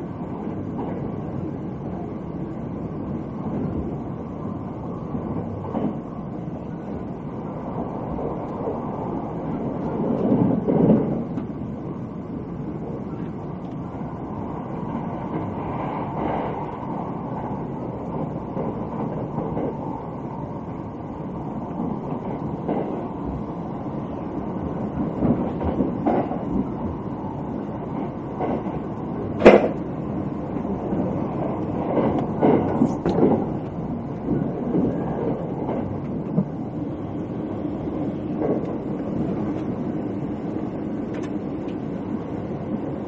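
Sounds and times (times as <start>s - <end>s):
train wheels rumbling on rails: 0.0s - 43.0s
track knocks: 24.6s - 27.0s, 27.9s - 29.9s, 30.5s - 36.6s.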